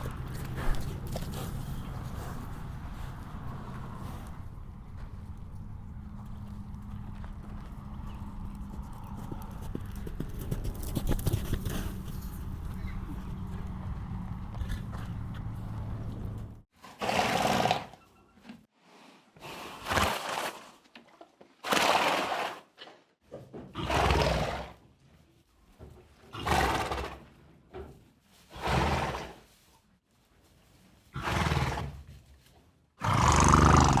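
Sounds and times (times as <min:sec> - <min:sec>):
horse vocalising: 0:33.0 - 0:34.0.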